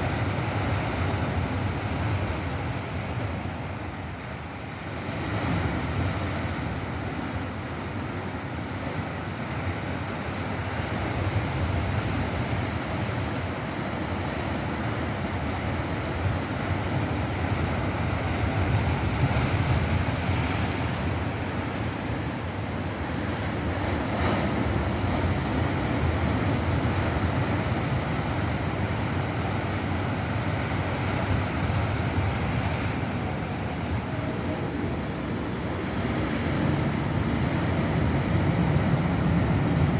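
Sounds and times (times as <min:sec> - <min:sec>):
ocean surf breaking: 0:00.0 - 0:39.9
wind rumbling on microphone: 0:15.2 - 0:39.9.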